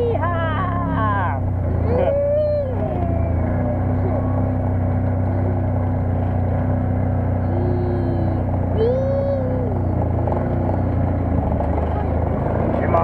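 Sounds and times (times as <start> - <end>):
buggy engine running: 0.0 - 13.0
high voice crying out: 1.8 - 3.4, 7.4 - 9.9.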